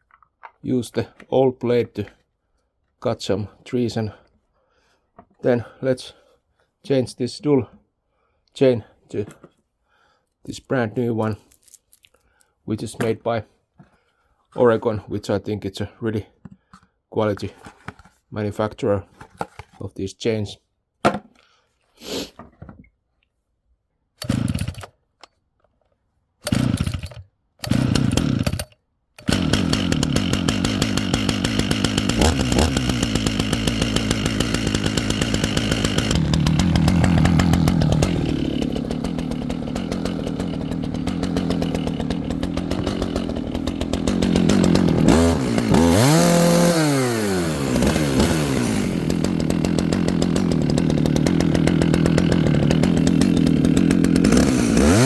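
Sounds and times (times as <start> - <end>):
chainsaw starting and running: 24.2 - 25.0, 26.4 - 55.0.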